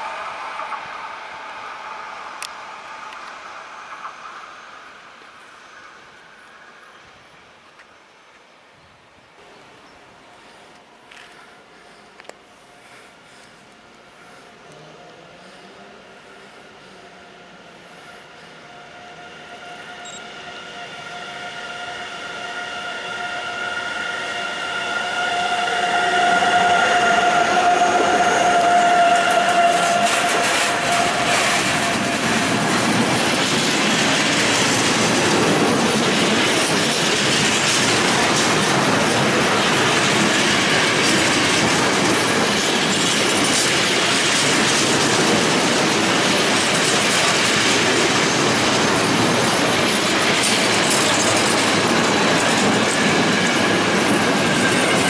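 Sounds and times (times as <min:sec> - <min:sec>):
wheels rushing on rails: 0:00.0 - 0:08.5, 0:10.6 - 0:55.0
electric train whine: 0:00.0 - 0:08.7, 0:09.4 - 0:55.0
clickety-clack over rail joints: 0:28.6 - 0:55.0.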